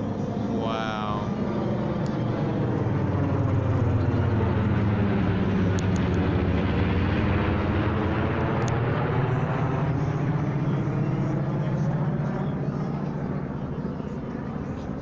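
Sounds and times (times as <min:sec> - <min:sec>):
airplane engine droning: 0:00.0 - 0:15.0.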